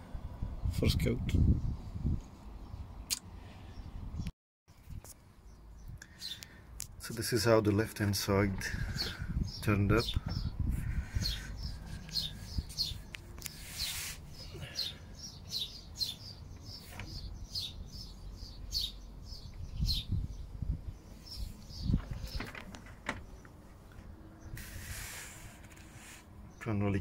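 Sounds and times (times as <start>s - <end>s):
small birds chirping: 2.6s - 27.0s
brief hiss: 24.6s - 26.3s.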